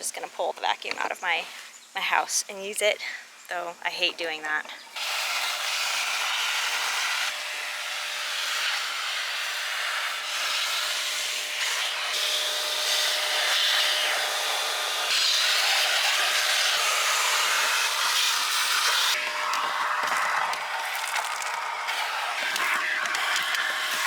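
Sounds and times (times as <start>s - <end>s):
vacuum cleaner running: 5.0s - 24.0s.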